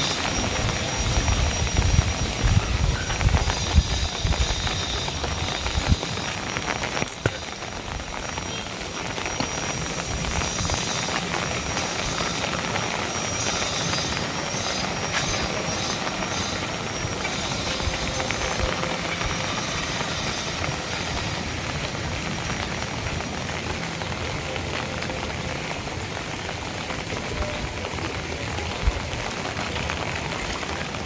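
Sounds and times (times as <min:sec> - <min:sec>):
heavy rain falling: 0:00.0 - 0:31.0
wind buffeting the microphone: 0:00.1 - 0:22.2.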